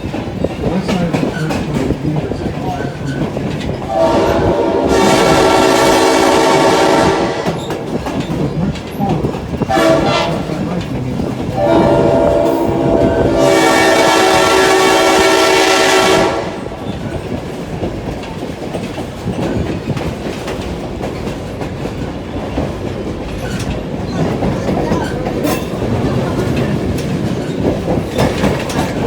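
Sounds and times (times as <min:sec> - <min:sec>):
railroad car rumbling on track: 0:00.0 - 0:29.0
train horn: 0:03.9 - 0:07.8, 0:09.7 - 0:10.7, 0:11.5 - 0:17.1.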